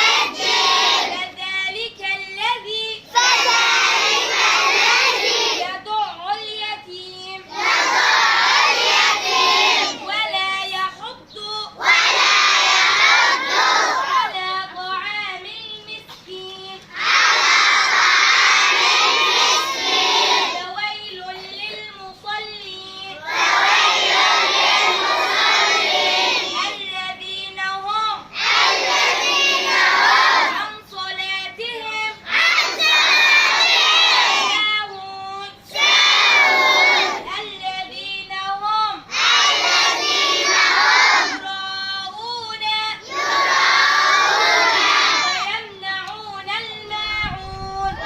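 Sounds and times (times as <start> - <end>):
children answering in unison: 11.8 - 14.3, 35.8 - 37.2.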